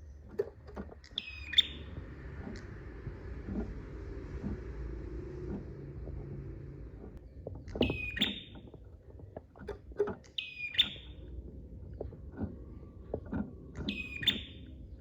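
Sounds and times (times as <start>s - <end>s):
low background hum: 0.0s - 15.0s
prinia calling: 1.0s - 2.8s, 7.7s - 8.7s, 10.2s - 11.2s, 13.8s - 14.8s.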